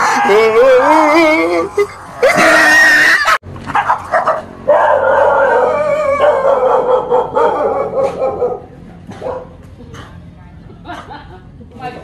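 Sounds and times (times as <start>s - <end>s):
small dog howling: 4.7s - 8.3s.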